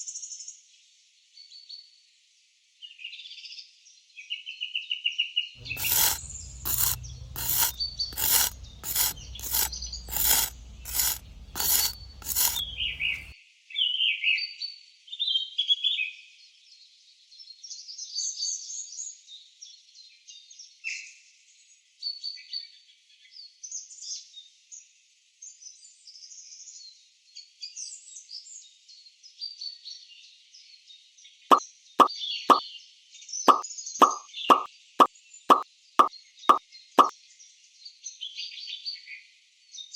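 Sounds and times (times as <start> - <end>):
sharp plops: 33.5 - 34.7.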